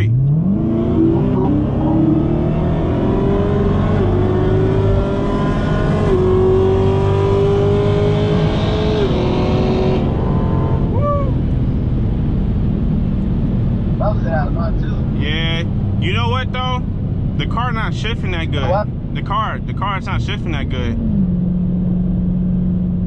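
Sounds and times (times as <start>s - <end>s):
car engine at full throttle: 0.0s - 23.0s
man talking: 14.0s - 16.8s, 17.4s - 21.0s.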